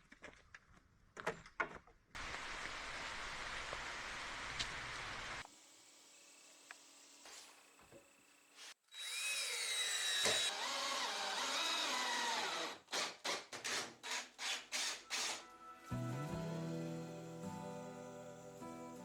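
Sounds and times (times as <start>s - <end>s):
power tool whining through wood: 8.9s - 15.4s.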